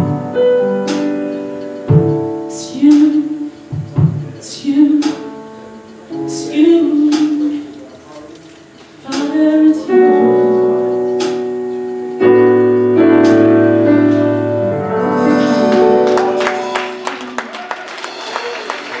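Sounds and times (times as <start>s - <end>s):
keyboard playing held chords: 0.0s - 18.3s
hand clapping: 15.4s - 19.0s.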